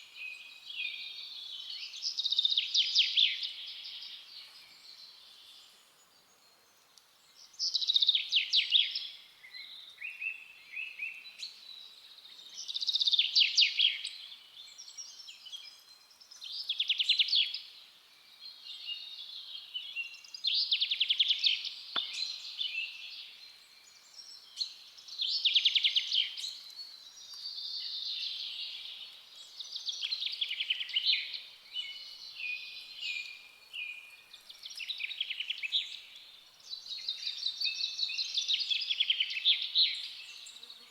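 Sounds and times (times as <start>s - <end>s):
soft bird chirps: 0.0s - 40.9s.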